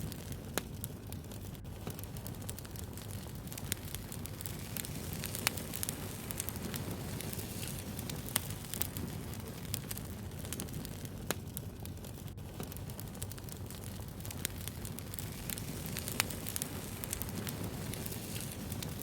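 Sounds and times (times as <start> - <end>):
sharp crackles and pops: 0.0 - 19.0
wood bonfire burning: 0.0 - 19.0.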